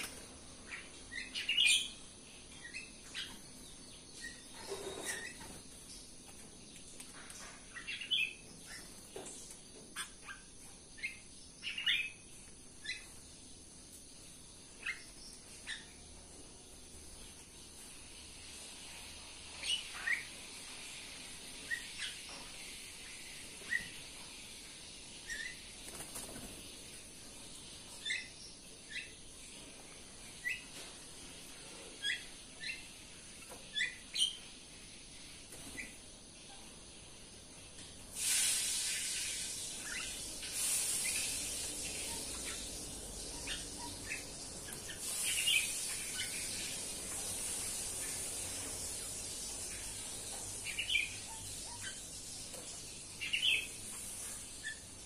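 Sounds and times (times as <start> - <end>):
caged birds chirping: 0.0 - 55.0
faint high hiss: 16.6 - 55.0.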